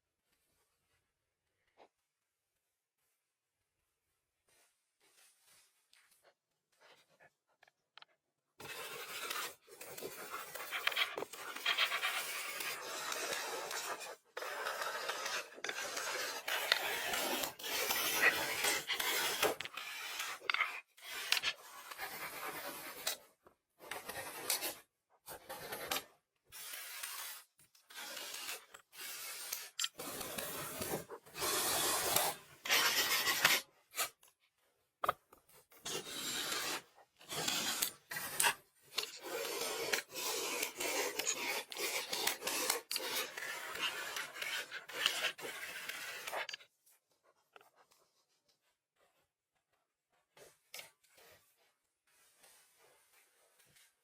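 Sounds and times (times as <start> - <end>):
rasping on wood: 8.6 - 23.0, 35.9 - 46.5.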